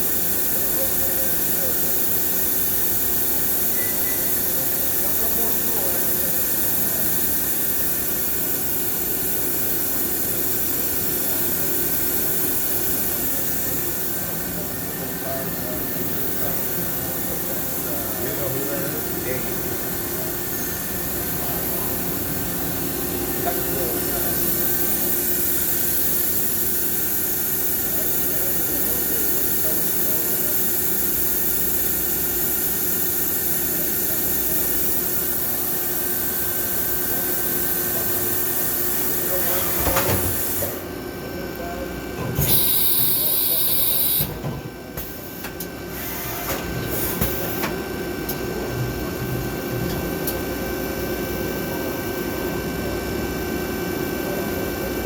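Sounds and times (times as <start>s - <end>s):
machining center humming: 0.0s - 55.0s
held machine tones: 2.5s - 8.4s.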